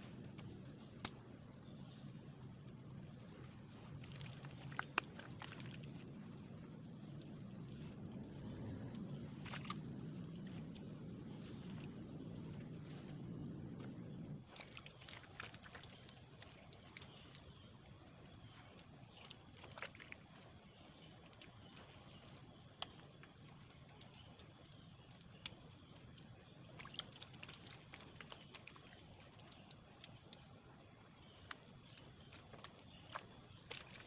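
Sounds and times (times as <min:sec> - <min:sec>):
insect drone: 0:00.0 - 0:34.0
low rumbling noise: 0:05.4 - 0:14.5.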